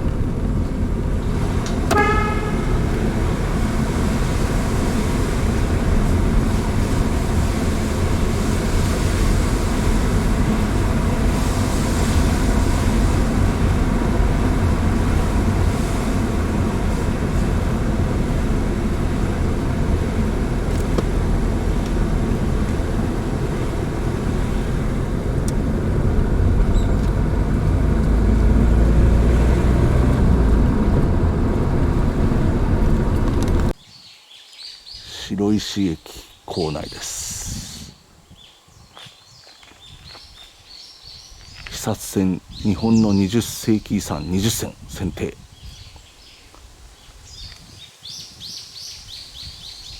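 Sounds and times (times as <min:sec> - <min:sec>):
car engine: 0:00.0 - 0:33.8
road rumble: 0:00.0 - 0:33.8, 0:35.0 - 0:49.9.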